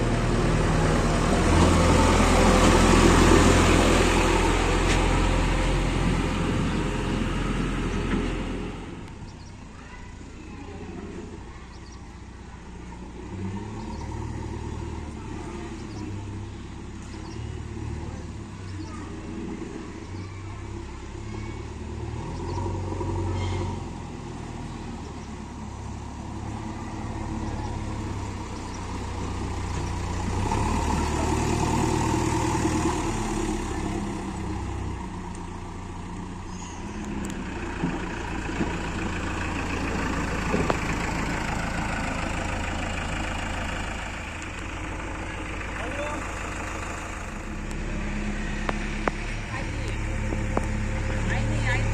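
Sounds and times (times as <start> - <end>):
heavy machine diesel engines: 0.0 - 51.9.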